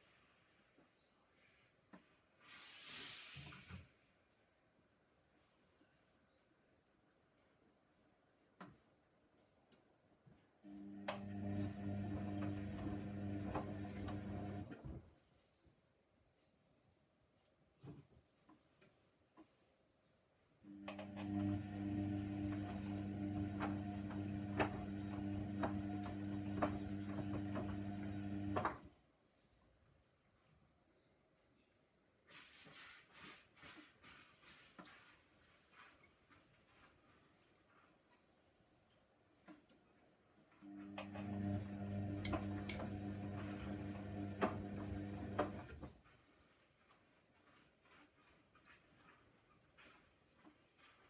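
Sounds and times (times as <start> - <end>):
washing machine motor hum: 10.7 - 15.0, 20.7 - 28.9, 40.7 - 46.0.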